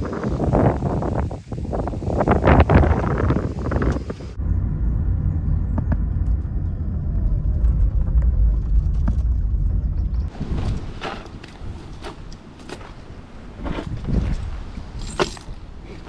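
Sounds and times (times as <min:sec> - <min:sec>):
gusty wind noise: 0:00.0 - 0:16.0
car driving on road: 0:04.3 - 0:10.3.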